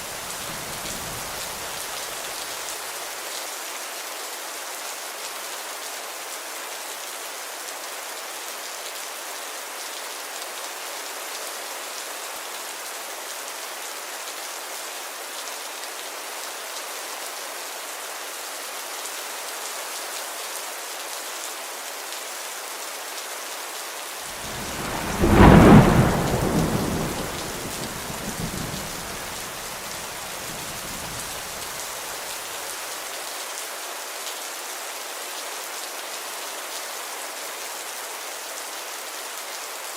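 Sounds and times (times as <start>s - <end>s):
steady rain falling: 0.0s - 39.9s
thunder clap rumbling: 24.4s - 31.8s.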